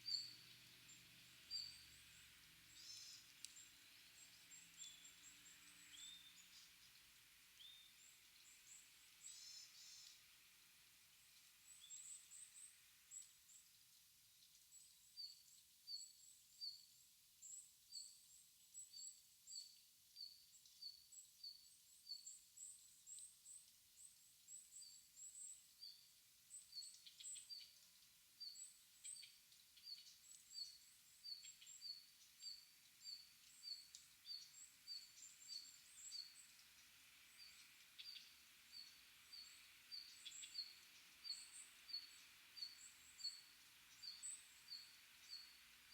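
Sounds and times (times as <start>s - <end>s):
birds twittering: 1.5s - 6.9s, 7.6s - 10.2s, 28.4s - 45.9s.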